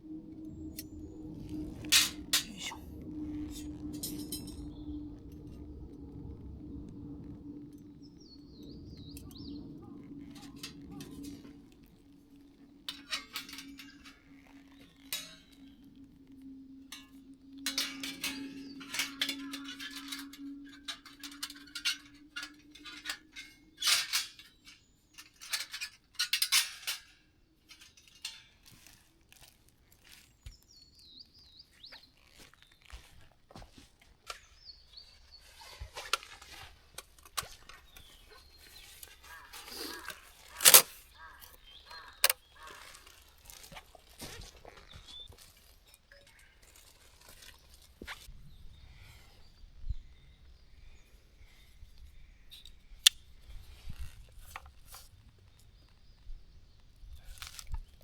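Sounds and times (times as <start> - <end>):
steady low hum: 0.0 - 28.5
bird singing: 0.0 - 58.0
metal cookware clinking: 3.5 - 4.8, 9.2 - 15.8, 16.9 - 29.0.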